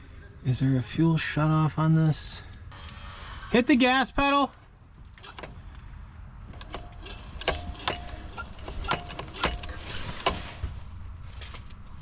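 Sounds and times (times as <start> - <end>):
metal parts clacking: 5.0 - 5.6, 6.5 - 10.6.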